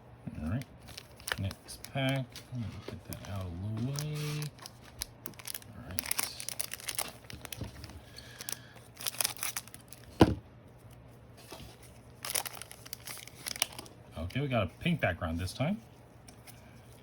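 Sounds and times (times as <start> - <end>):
foil pack tearing and crinkling: 0.5 - 10.2, 12.2 - 13.9.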